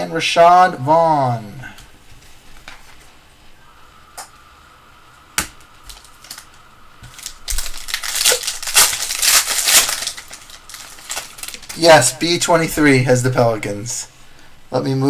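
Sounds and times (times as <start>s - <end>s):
foil wrapper crinkling and tearing: 5.6s - 12.2s.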